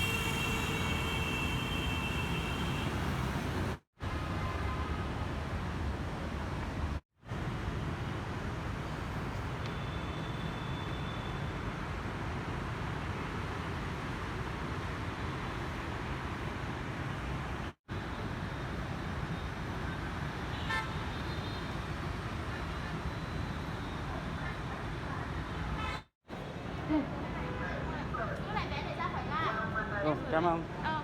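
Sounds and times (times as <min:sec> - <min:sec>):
vehicle horn tooting: 0:00.0 - 0:03.3
road traffic noise: 0:00.0 - 0:31.0.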